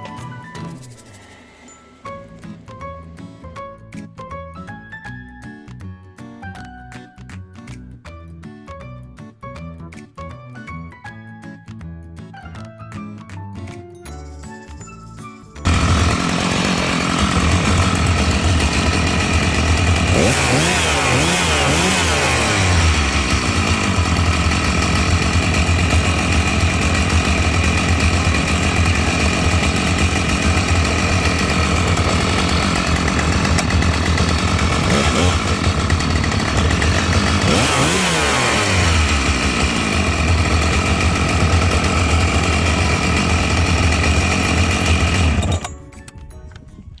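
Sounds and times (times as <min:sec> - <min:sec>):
chainsaw engine revving: 0:15.6 - 0:45.7.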